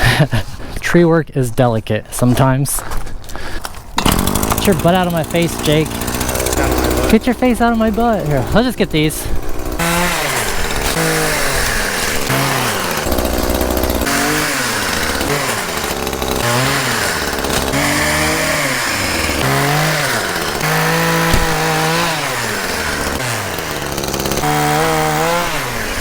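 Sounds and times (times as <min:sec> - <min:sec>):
chainsaw revving: 0:04.0 - 0:26.0
sharp knock: 0:21.2 - 0:21.9.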